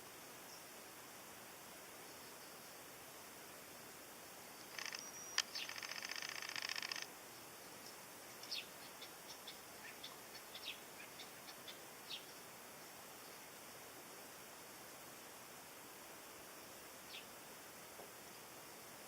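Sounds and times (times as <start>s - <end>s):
background hiss: 0.0s - 19.0s
sharp click: 4.7s - 7.1s
bird trilling: 4.8s - 7.0s
short high bird chirps: 4.8s - 7.0s.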